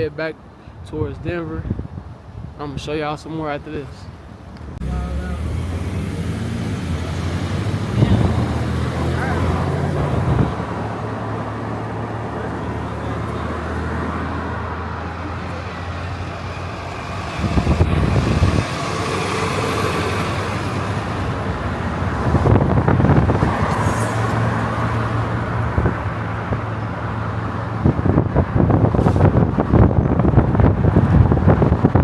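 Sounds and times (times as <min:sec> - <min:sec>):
wind gusts on microphone: 0:00.0 - 0:32.0
vehicle road noise hum: 0:03.3 - 0:32.0.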